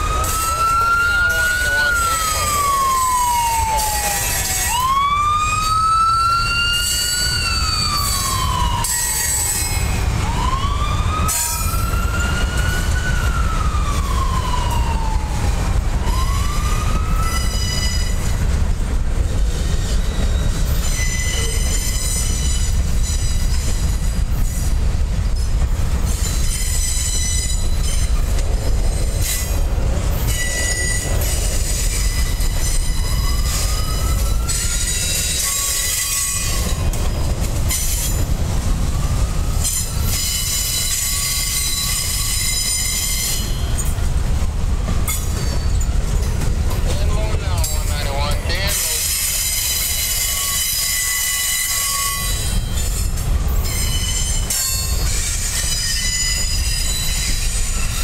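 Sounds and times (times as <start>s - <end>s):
siren wailing: 0.0s - 18.3s, 32.8s - 36.8s, 38.6s - 42.8s
freight cars rumbling: 0.0s - 58.0s
wheels squealing on rails: 0.0s - 58.0s.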